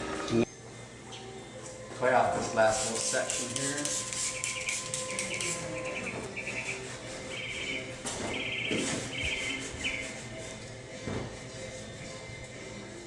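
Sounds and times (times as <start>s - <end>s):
clay bar squeaking on car paint: 2.7s - 10.7s.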